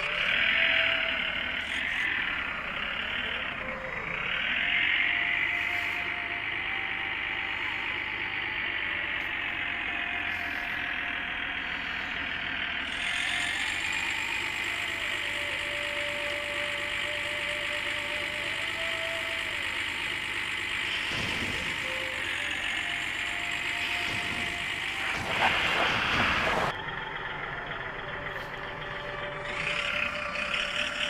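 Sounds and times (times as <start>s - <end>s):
small motor whining: 0.0s - 31.0s.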